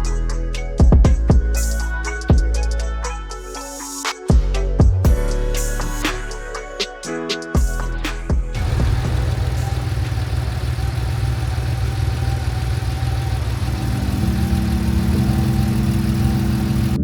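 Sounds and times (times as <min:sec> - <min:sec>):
car engine rumbling: 0:08.6 - 0:17.0.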